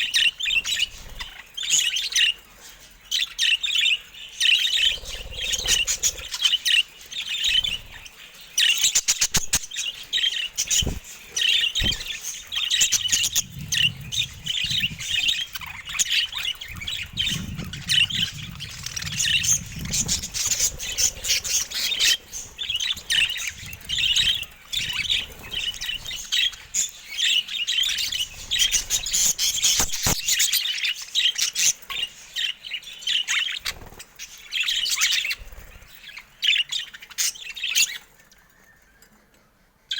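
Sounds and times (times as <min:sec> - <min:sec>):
budgerigars chattering: 0:03.3 - 0:30.6.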